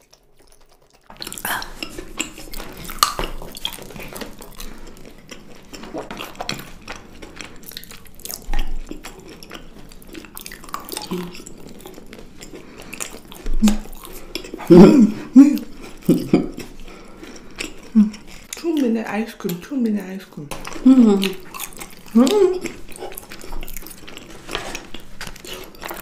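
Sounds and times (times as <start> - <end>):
wet mouth clicks: 0.0 - 4.7, 10.2 - 11.6, 13.0 - 14.7
chewing: 0.0 - 26.0.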